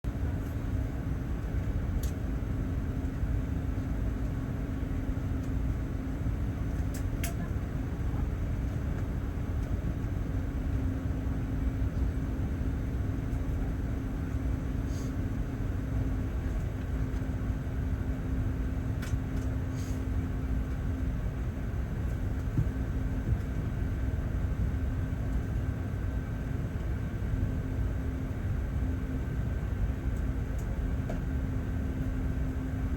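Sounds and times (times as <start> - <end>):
steady low hum: 0.1 - 32.9
ventilation air rushing: 19.6 - 27.1.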